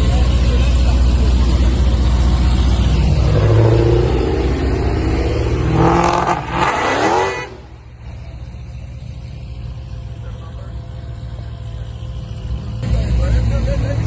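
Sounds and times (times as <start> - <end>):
car engine revving hard: 1.4 - 7.8.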